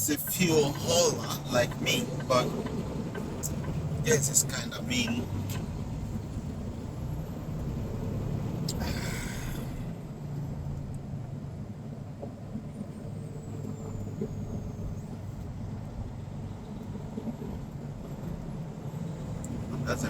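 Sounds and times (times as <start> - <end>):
truck diesel engine running: 0.0 - 10.7
road rumble: 0.0 - 20.0.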